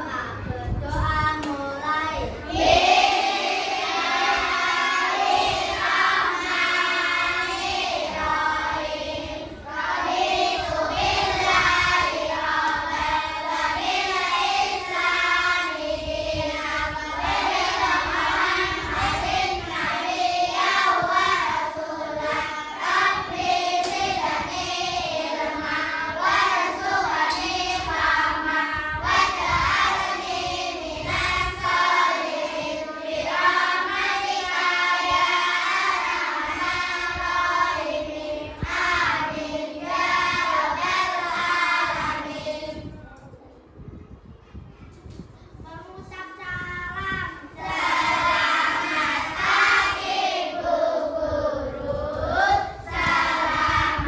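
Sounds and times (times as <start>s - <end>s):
children chanting in unison: 1.4s - 42.9s, 47.5s - 54.0s.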